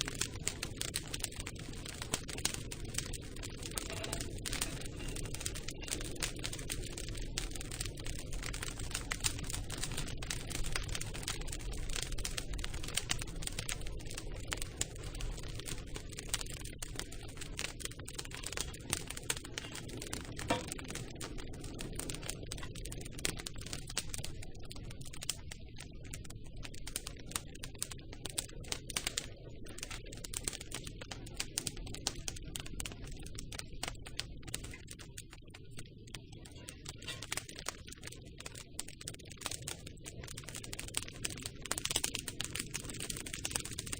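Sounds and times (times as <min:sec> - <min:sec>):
campfire crackling: 0:00.0 - 0:43.9
low rumble of burning fire: 0:00.0 - 0:43.9.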